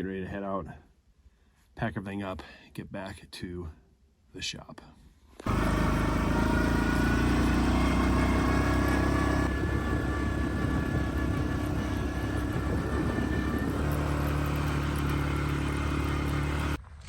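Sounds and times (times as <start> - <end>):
atv engine running: 5.5 - 16.8.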